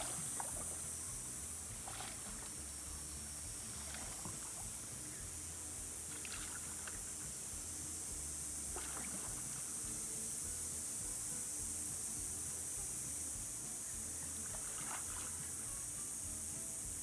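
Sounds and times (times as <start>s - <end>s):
small water splashes: 0.0s - 10.1s, 14.4s - 15.6s
water rushing: 0.0s - 13.0s.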